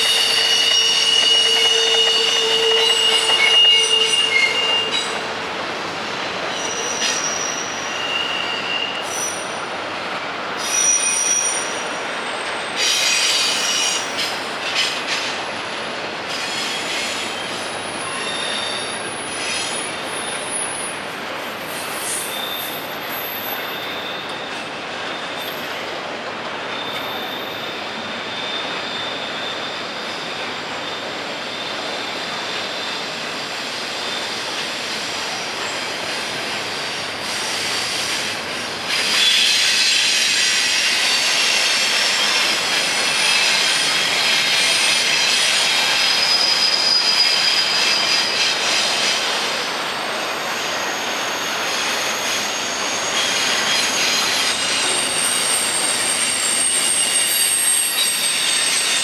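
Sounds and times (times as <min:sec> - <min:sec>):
train rolling rush: 0:00.0 - 0:59.0
train wheels squealing: 0:00.0 - 0:59.0.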